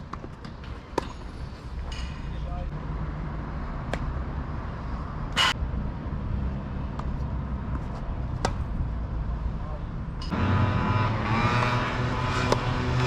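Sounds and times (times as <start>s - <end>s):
tennis ball hit by rackets: 7.7s - 8.7s.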